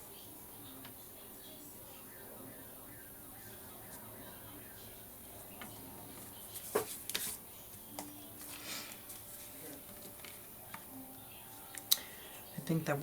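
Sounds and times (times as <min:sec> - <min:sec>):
faint paper rustling: 0:05.3 - 0:10.9.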